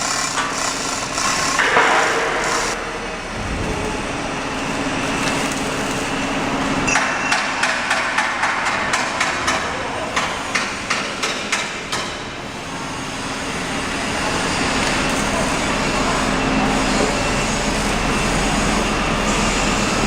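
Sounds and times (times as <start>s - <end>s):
machine running with hum: 0.0s - 6.9s.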